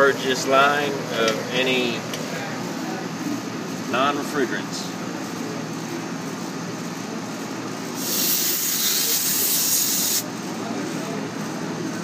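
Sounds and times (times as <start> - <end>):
air-conditioning unit running: 0.0 - 12.0
refrigerant hissing from hose: 8.0 - 10.3.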